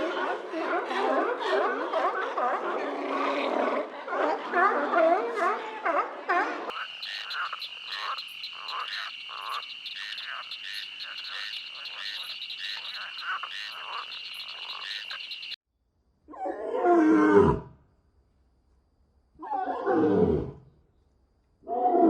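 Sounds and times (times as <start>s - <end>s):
frogs croaking: 6.7s - 15.6s.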